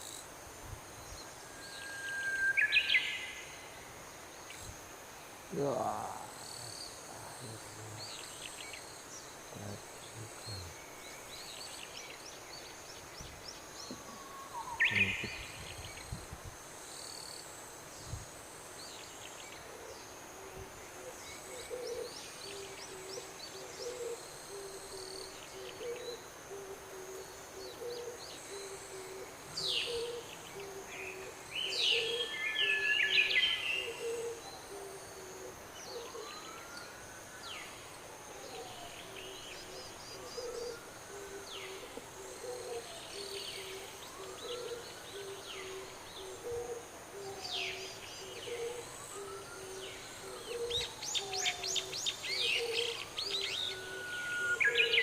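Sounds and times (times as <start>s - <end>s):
insect buzzing: 3.7s - 19.2s
birds chirping: 5.5s - 16.1s
bird hooting: 28.9s - 36.3s, 40.2s - 55.0s.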